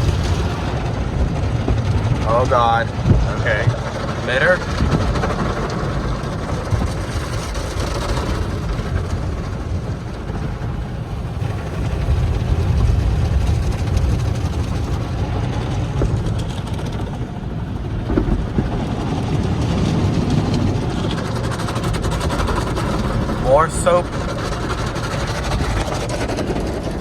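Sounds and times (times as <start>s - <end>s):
car wash brushes and water spray: 18.4s - 27.0s.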